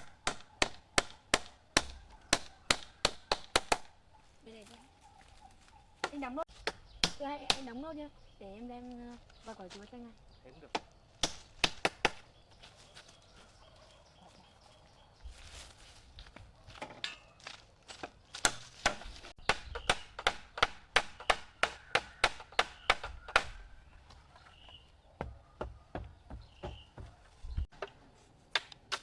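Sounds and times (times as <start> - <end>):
hammer driving nails: 18.4 - 23.6.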